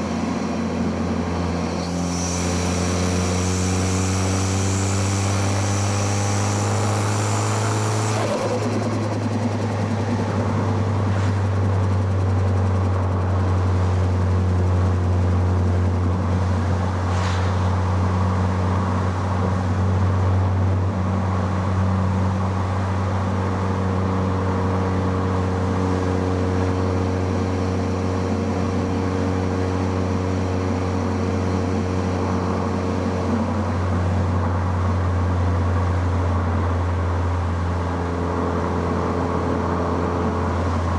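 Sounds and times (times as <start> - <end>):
car engine running: 0.0 - 19.6.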